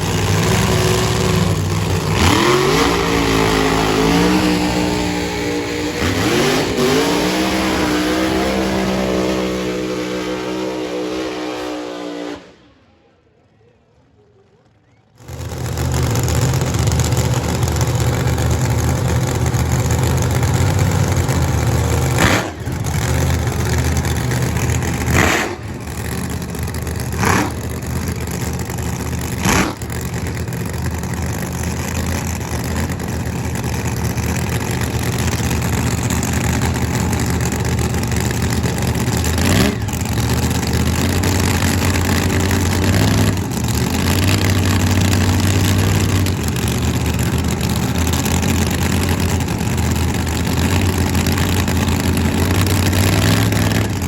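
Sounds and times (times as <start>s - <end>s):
race car engine idling loudly: 0.0s - 11.4s, 13.9s - 54.0s
short sharp engine blasts: 0.0s - 13.0s, 15.2s - 31.7s.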